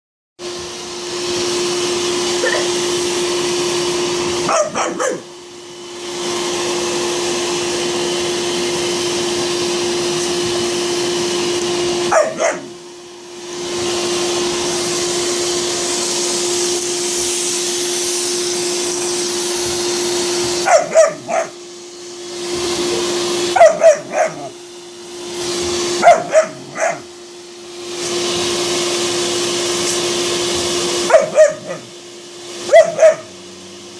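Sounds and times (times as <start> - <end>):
vacuum cleaner humming: 0.4 - 33.9
dog barking: 2.4 - 2.8, 4.4 - 5.3, 12.1 - 12.7, 20.6 - 21.6, 23.5 - 24.6, 26.0 - 27.1, 31.0 - 31.9, 32.6 - 33.4.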